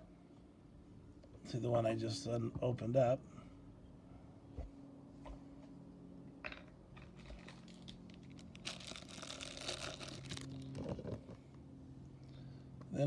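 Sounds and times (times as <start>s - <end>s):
plastic packaging crinkling: 7.1s - 11.2s
plastic packaging clicks: 7.3s - 11.2s.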